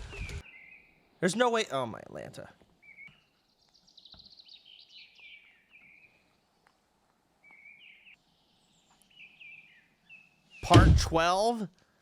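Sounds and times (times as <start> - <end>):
faint outdoor hiss: 0.4 - 12.0.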